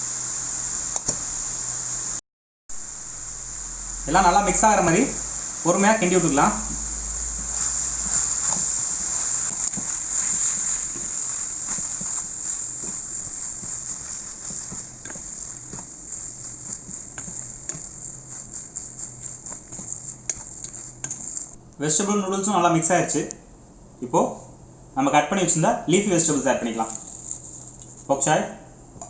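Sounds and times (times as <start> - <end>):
food sizzling in a hot pan: 0.0 - 21.6, 26.3 - 28.2
spatula scraping and knocking pan: 6.0 - 21.6.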